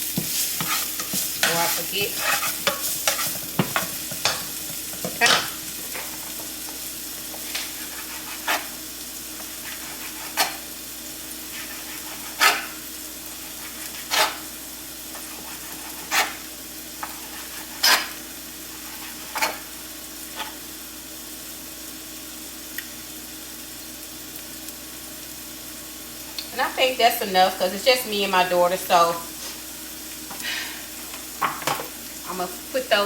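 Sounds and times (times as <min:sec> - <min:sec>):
peppers sizzling in skillet: 0:00.0 - 0:33.0
knife slicing meat: 0:11.6 - 0:12.8, 0:13.5 - 0:14.4, 0:15.2 - 0:16.4, 0:17.1 - 0:18.2.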